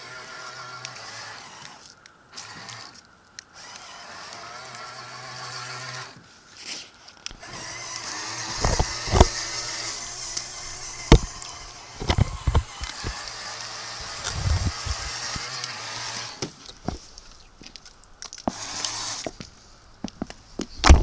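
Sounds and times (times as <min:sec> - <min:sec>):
small electric motor whining: 0:00.0 - 0:06.2, 0:07.3 - 0:21.0
sharp knocks and bumps: 0:08.4 - 0:13.4, 0:14.0 - 0:15.4, 0:16.4 - 0:21.0.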